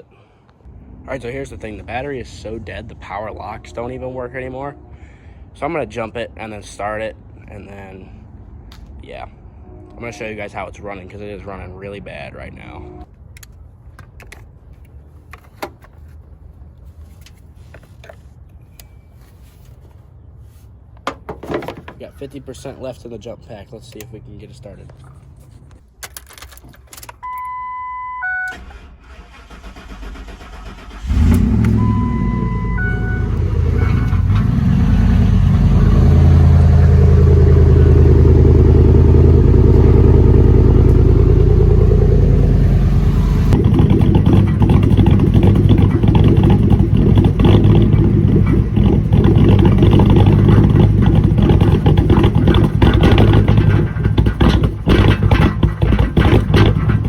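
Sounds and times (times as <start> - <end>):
short electronic beeps: 27.2 - 28.6, 31.8 - 34.2
truck engine running roughly: 29.1 - 57.0.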